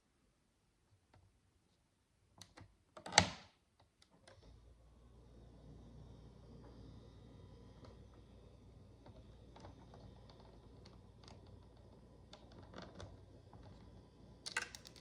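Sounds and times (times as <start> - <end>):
plastic bricks clicking together: 14.5 - 15.0.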